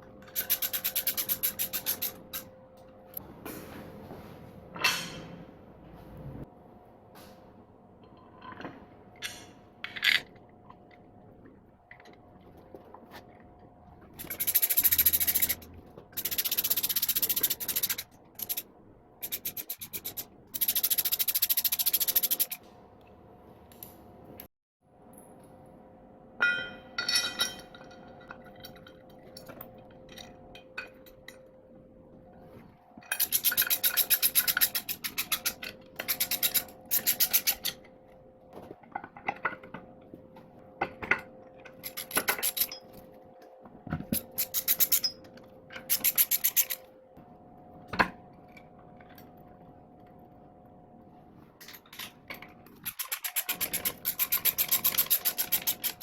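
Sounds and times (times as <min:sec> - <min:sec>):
hand tool rasping strokes: 0:00.4 - 0:02.4, 0:14.2 - 0:18.6, 0:19.2 - 0:22.6, 0:33.2 - 0:37.7, 0:45.9 - 0:46.8, 0:52.8 - 0:56.0.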